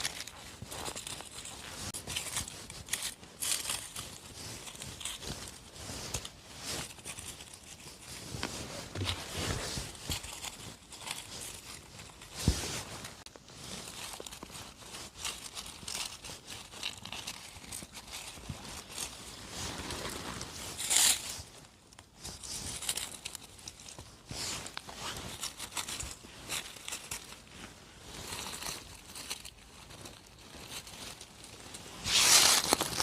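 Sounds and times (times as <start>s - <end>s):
soft footsteps: 0.0s - 15.3s
leaves rustling and crackling: 0.0s - 33.0s.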